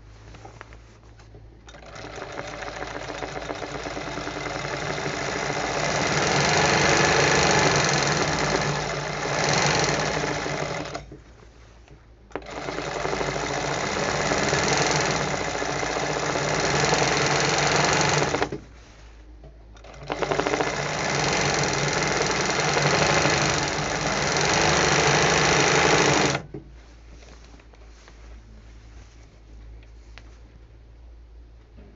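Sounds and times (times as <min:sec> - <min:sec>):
embroidery sewing machine stitching: 0:01.7 - 0:11.1, 0:12.3 - 0:18.6, 0:19.8 - 0:26.6.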